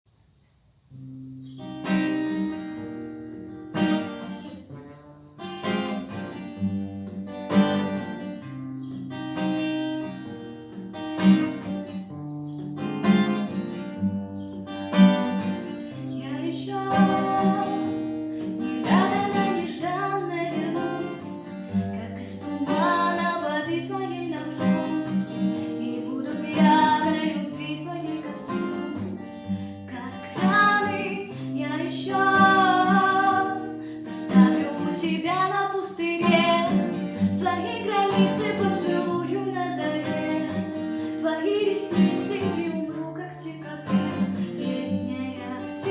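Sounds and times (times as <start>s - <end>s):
acoustic guitar strumming chords: 1.0s - 45.9s
woman singing: 15.9s - 45.9s.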